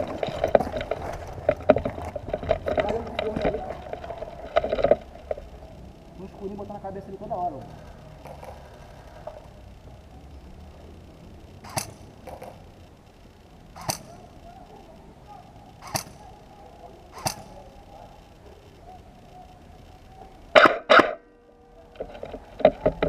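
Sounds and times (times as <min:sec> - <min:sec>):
airsoft rifle shots: 0:11.6 - 0:12.6, 0:13.7 - 0:14.4, 0:15.8 - 0:16.4, 0:17.1 - 0:17.8, 0:20.5 - 0:21.2.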